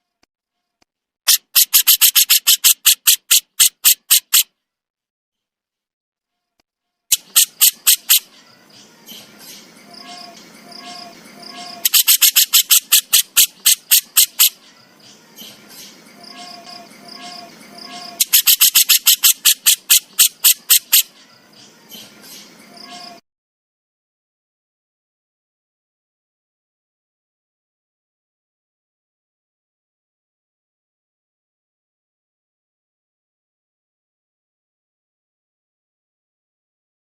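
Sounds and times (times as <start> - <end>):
bird rattling clicks: 1.3 - 4.4, 11.9 - 14.5, 18.2 - 21.0
bird soft chattering: 7.1 - 23.2.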